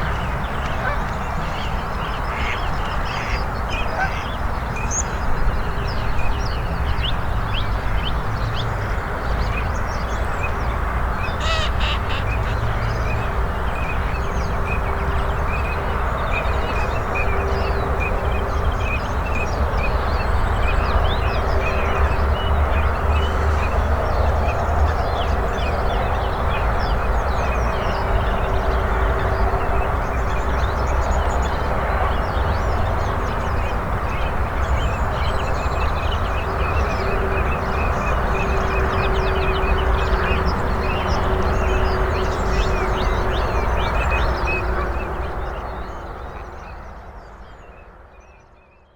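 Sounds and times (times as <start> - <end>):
harsh bird caw: 11.4 - 12.6.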